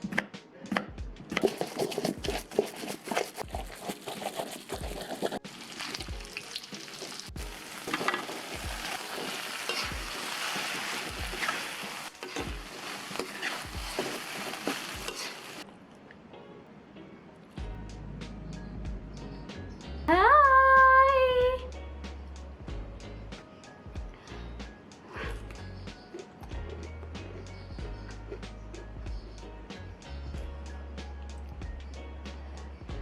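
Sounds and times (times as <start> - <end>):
music with kick-drum beat: 0.8 - 1.4, 6.0 - 6.3, 7.3 - 7.6, 8.6 - 8.9, 9.9 - 10.2, 11.1 - 11.5, 17.6 - 18.0, 18.8 - 19.2, 22.6 - 23.0, 23.9 - 24.3, 26.5 - 30.7, 31.6 - 32.0
food sizzling in hot oil: 5.0 - 15.7.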